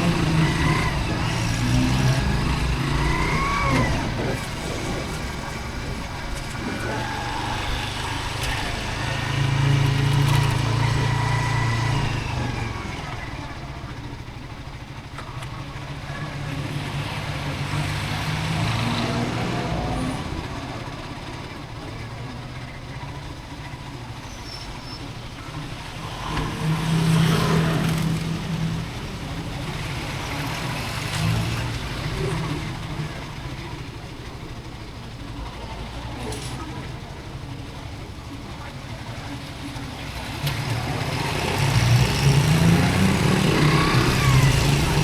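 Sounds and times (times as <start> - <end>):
motorcycle engine running: 0.0 - 18.7, 19.6 - 45.0
road noise: 0.0 - 45.0
wind: 0.0 - 45.0.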